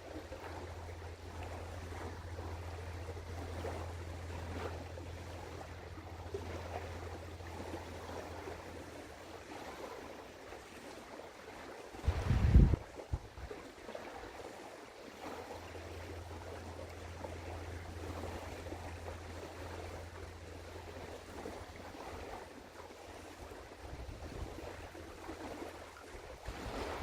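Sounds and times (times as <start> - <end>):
low steady hum: 0.0 - 27.0
river water washing: 0.0 - 27.0
wind noise: 12.0 - 13.5.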